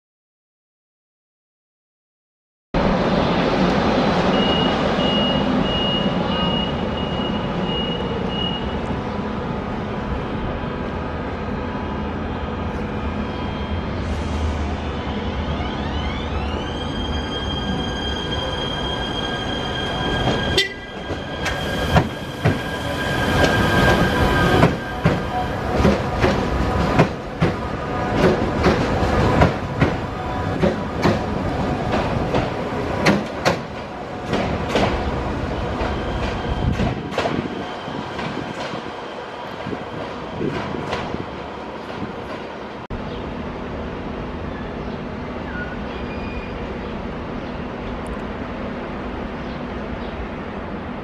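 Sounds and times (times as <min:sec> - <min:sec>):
high-pitched train whine: 0:02.8 - 0:32.9
wheel squeal: 0:45.5 - 0:46.6.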